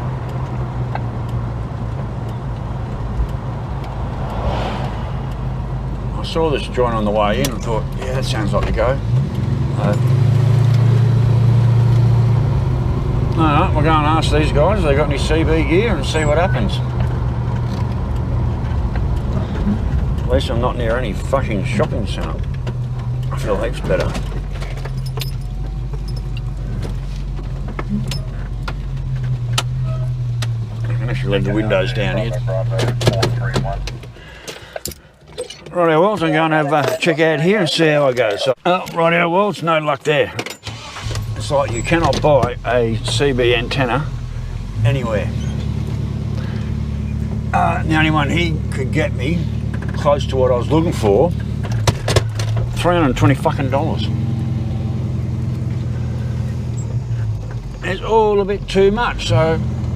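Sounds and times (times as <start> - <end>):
car engine running: 0.0 - 35.3, 40.6 - 59.9
road noise inside car: 0.0 - 59.9
brief rush of noise: 4.1 - 6.1
light clicks and rattles: 15.8 - 30.9.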